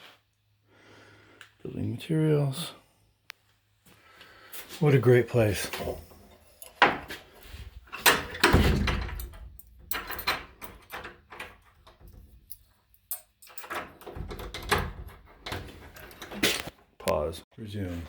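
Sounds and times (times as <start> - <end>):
door knocks and clatter: 7.9 - 12.5, 13.6 - 16.5.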